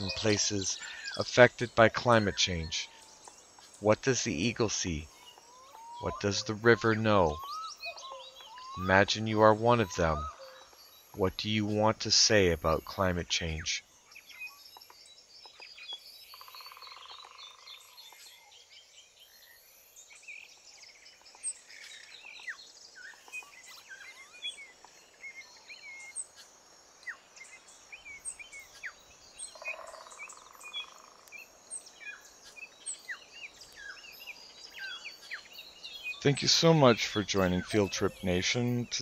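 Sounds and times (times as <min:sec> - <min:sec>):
buzzy bird trill: 0:00.0 - 0:13.8
small birds chirping: 0:00.0 - 0:39.0.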